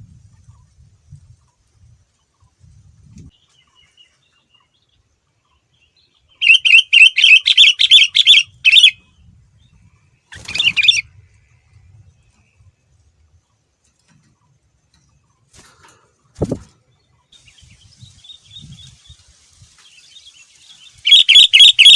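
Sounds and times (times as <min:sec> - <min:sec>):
bird whistling repeated notes: 0:06.4 - 0:09.0, 0:20.9 - 0:21.9.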